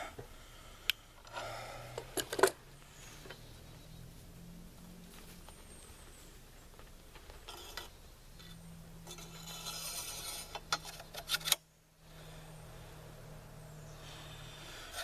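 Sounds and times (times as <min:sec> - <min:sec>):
metal parts scraping and rubbing: 0:07.4 - 0:11.6.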